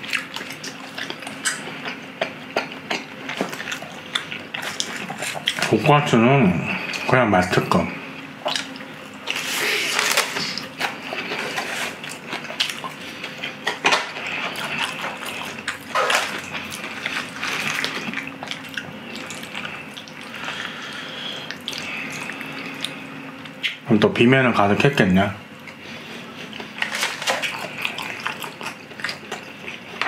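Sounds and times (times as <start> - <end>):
crunchy chewing: 0.0 - 7.1, 8.0 - 23.8, 25.5 - 30.0
chopsticks scraping foil tray: 9.3 - 12.0, 26.8 - 27.5.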